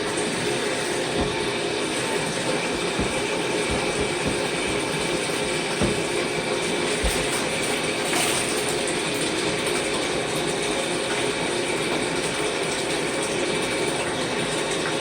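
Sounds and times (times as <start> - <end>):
tap water running: 0.0 - 15.0
soft knocks of plastic parts: 1.2 - 6.2.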